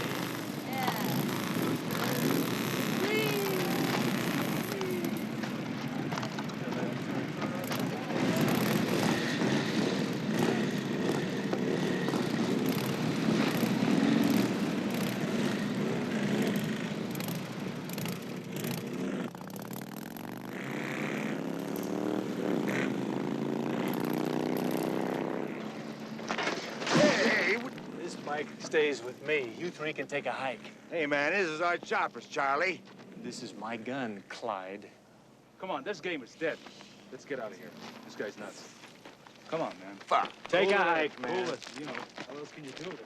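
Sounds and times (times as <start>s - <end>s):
motorcycle pulling away: 0.0s - 31.8s
motorcycles revving: 0.0s - 43.0s.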